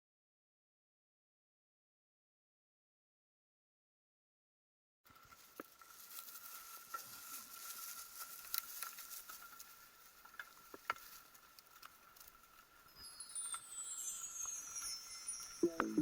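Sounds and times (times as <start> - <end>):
faint rustling hiss: 5.1 - 16.0
sharp clicks and crackles: 5.2 - 12.8
thin steady high tone: 12.9 - 16.0.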